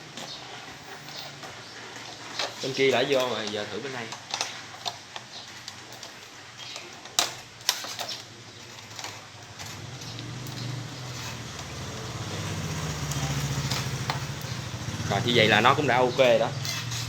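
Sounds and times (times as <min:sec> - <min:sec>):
handling noise: 0:00.0 - 0:17.0
motorbike engine running: 0:09.6 - 0:17.0.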